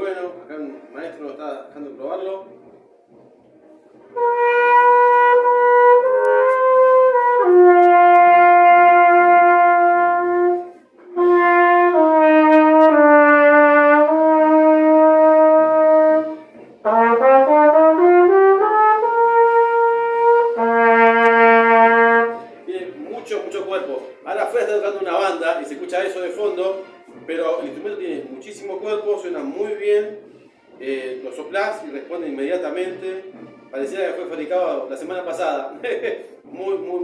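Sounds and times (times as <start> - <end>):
solo flugelhorn: 4.1 - 22.6.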